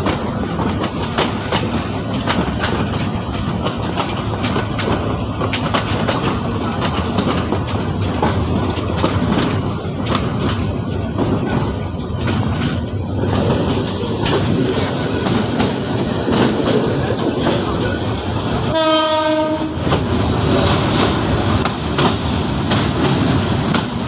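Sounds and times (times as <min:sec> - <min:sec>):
sharp clicks and rattles: 0:00.0 - 0:18.6
train wheels rumbling on rails: 0:00.0 - 0:24.0.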